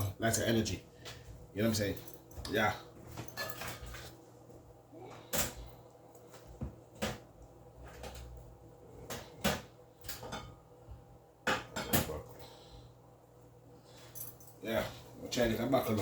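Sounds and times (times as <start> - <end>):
kitchen items knocking and clunking: 9.0 - 10.6, 11.4 - 12.2.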